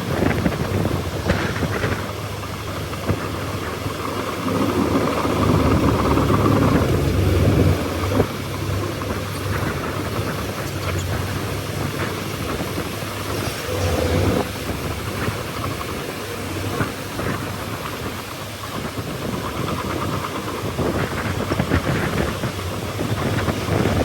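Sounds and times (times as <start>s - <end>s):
bulldozer diesel engine running: 0.0s - 24.0s
rattling: 9.0s - 17.9s.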